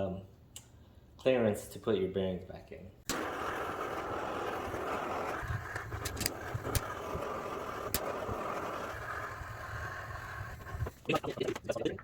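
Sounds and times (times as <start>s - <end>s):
heating tool rushing: 3.1s - 11.1s.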